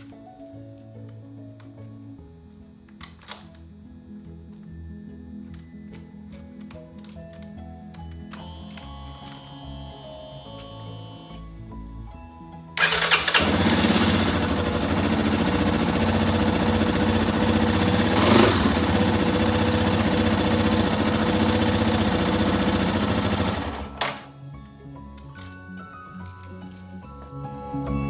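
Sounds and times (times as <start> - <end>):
motorcycle engine starting and running: 12.8 - 24.4.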